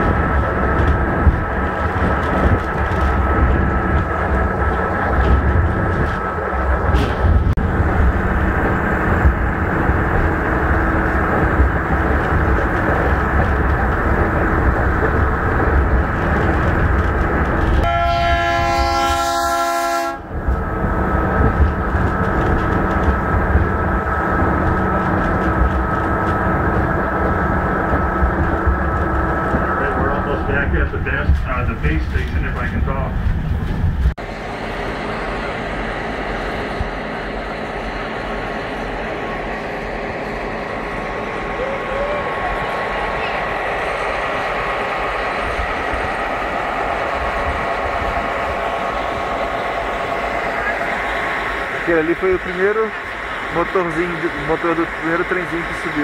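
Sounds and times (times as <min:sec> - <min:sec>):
train rumble and rattle: 0:00.0 - 0:56.0
train horn: 0:17.8 - 0:20.3.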